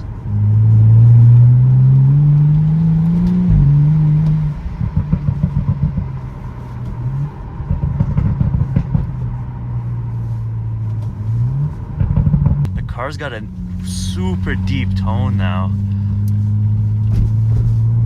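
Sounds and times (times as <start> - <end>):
deep car exhaust with crackling: 0.0 - 18.0.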